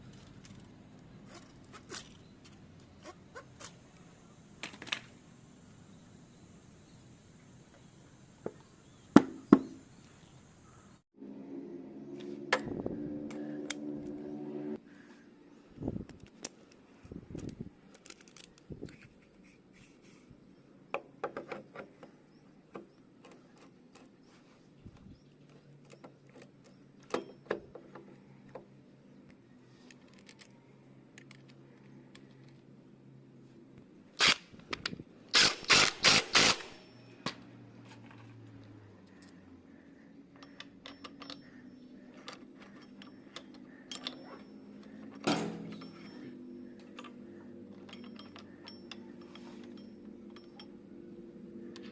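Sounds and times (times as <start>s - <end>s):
metal tools clinking and scraping: 25.5s - 27.5s, 40.3s - 51.9s.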